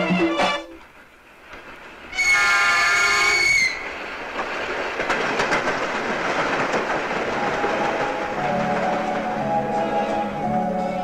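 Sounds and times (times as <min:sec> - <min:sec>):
train wheels clattering over rails: 0:00.0 - 0:11.0
train horn: 0:02.1 - 0:03.9.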